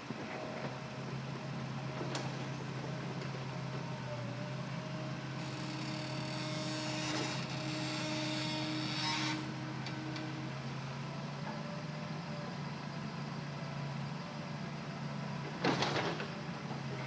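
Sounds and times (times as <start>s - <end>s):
excavator engine drone: 0.0s - 17.0s.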